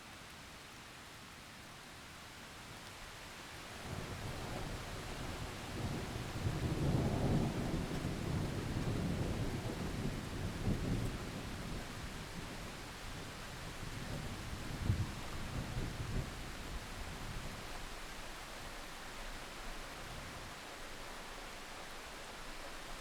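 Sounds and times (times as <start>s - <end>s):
heavy rain falling: 3.6s - 23.0s
low roll of thunder: 3.9s - 17.6s.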